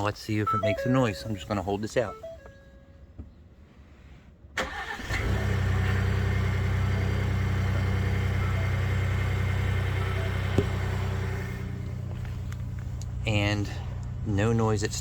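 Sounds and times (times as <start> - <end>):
engine idling: 4.6 - 15.0.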